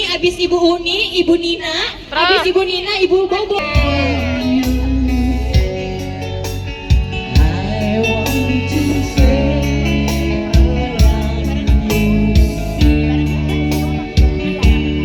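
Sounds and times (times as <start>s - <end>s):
band music with singing: 3.6s - 15.0s.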